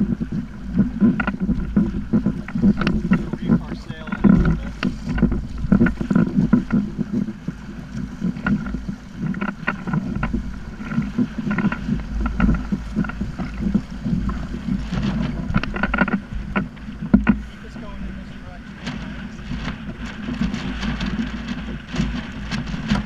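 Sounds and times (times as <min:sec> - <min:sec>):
water splashing against hull: 0:00.0 - 0:23.0
wind buffeting microphone: 0:00.0 - 0:23.0.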